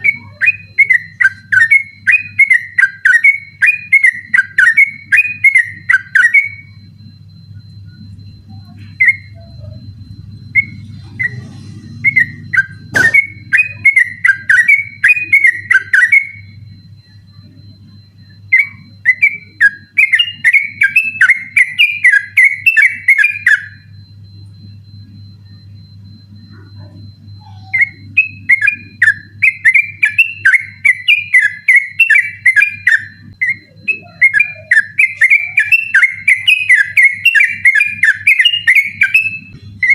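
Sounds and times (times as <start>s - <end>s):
low hum: 6.7s - 13.8s
bird singing whistled notes: 10.4s - 17.2s, 18.2s - 23.8s, 27.4s - 39.9s.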